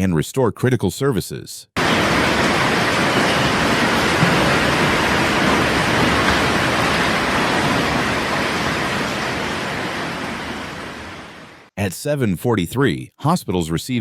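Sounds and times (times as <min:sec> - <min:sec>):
heavy rain pouring: 0:01.8 - 0:11.7.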